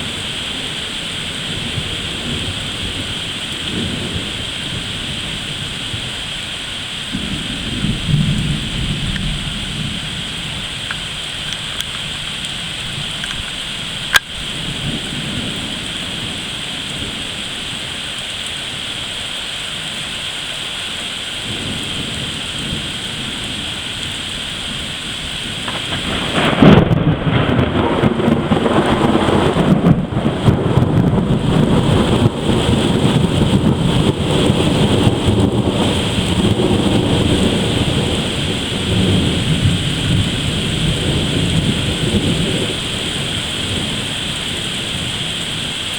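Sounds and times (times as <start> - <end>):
close thunderclap: 0.0 - 6.1, 7.1 - 17.2, 21.5 - 45.7
thunder rolling: 0.0 - 6.3, 7.1 - 17.4, 21.5 - 45.9
heavy rain: 0.0 - 45.9
sharp tick: 13.2 - 14.3.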